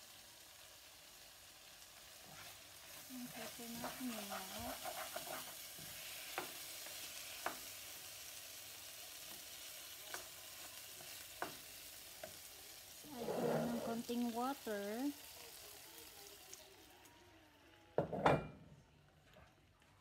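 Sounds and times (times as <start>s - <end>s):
food sizzling in frying pan: 0.0s - 19.9s
spatula scraping pan: 2.2s - 7.6s, 13.0s - 14.3s
spatula tapping pan: 3.7s - 7.9s, 10.0s - 12.4s.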